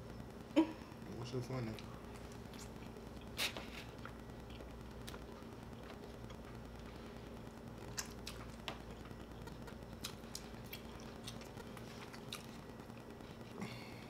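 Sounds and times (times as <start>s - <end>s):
faint steady hum: 0.0s - 14.0s
chewing: 1.7s - 6.7s, 7.8s - 13.6s.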